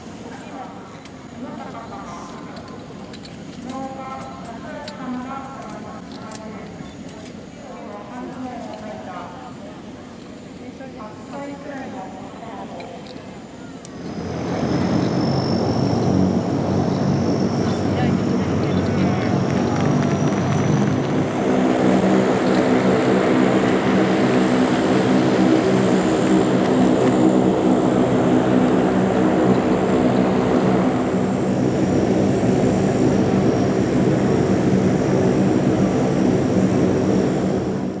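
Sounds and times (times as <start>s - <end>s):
aircraft engines droning: 0.0s - 38.0s
faint high whine: 11.0s - 38.0s.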